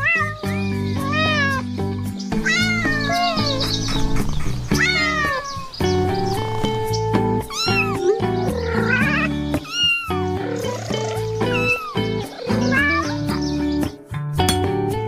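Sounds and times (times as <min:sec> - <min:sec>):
cat meowing: 0:00.0 - 0:01.7, 0:02.4 - 0:03.8, 0:04.7 - 0:06.4, 0:07.4 - 0:13.6
cat wavering cry: 0:00.0 - 0:01.7, 0:02.4 - 0:03.8, 0:04.7 - 0:05.8, 0:07.4 - 0:13.7
background music: 0:00.0 - 0:15.0.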